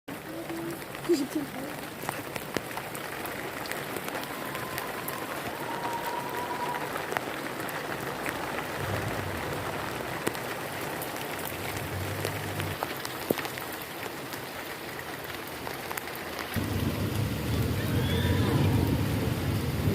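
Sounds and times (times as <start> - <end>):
raindrops ticking on a surface: 0.1 - 19.9
steady rain hissing: 0.1 - 19.9
short low rumbles: 8.8 - 10.2.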